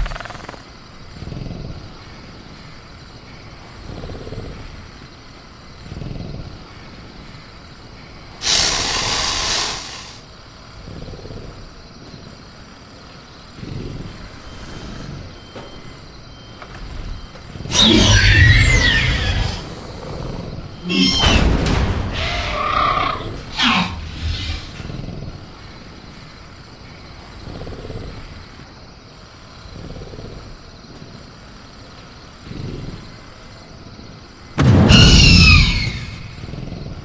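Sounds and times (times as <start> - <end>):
crickets chirring: 0.0 - 37.0
loud hiss: 8.4 - 10.2
creature growls and heavy breaths: 8.4 - 11.7, 22.1 - 25.8, 27.2 - 28.7.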